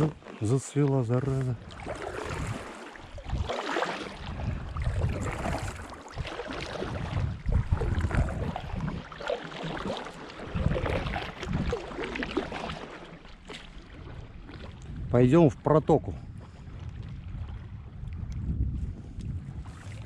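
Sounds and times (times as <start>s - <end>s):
wind buffeting microphone: 0.0s - 9.2s, 9.8s - 12.9s, 13.7s - 20.0s
paddles splashing in water: 0.0s - 15.1s, 19.2s - 20.0s.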